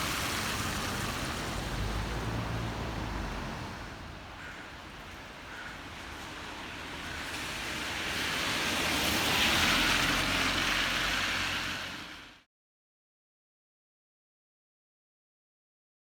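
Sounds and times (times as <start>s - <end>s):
heavy rain: 0.0s - 12.4s
wet tyre hiss: 6.4s - 12.4s.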